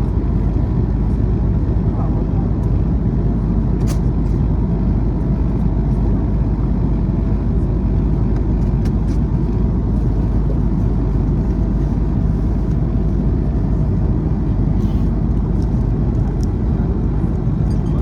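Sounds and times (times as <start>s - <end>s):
vehicle interior rumble: 7.2s - 18.0s.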